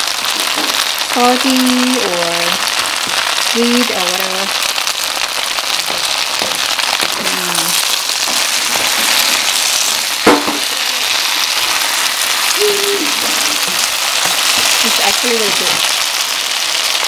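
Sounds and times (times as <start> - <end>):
food sizzling in hot oil: 0.0 - 17.0
sharp knock: 10.2 - 10.7.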